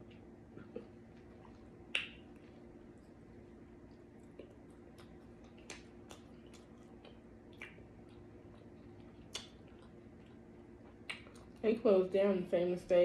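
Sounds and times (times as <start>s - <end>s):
wet chewing mouth sounds: 3.8s - 11.6s.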